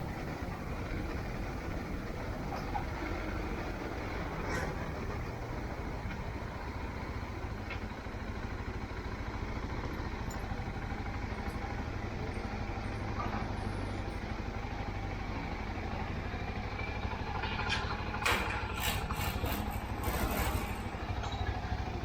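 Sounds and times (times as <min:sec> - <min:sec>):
motorcycle engine hum: 0:00.0 - 0:22.0.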